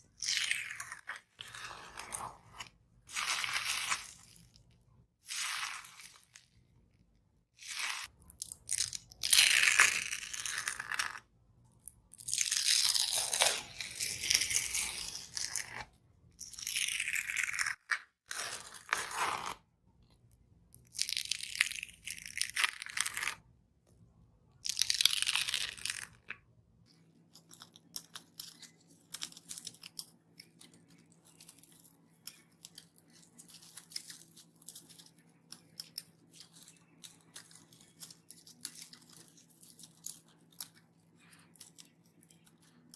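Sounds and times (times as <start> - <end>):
dried slime skin tearing: 12.2 - 15.8.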